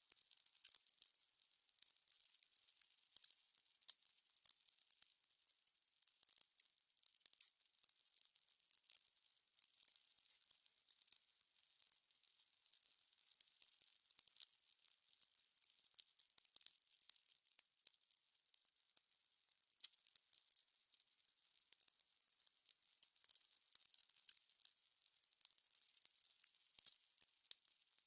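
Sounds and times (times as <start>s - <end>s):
fire crackling: 19.8s - 20.7s, 21.4s - 28.0s.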